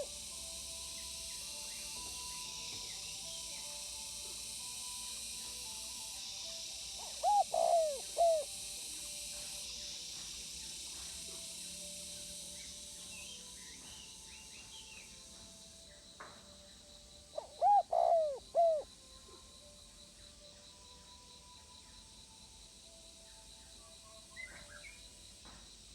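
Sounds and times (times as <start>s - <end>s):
steady background hiss: 0.0s - 25.9s
dove cooing: 7.0s - 8.5s, 17.4s - 18.8s
faint high bird chirps: 7.0s - 8.5s, 17.4s - 18.8s.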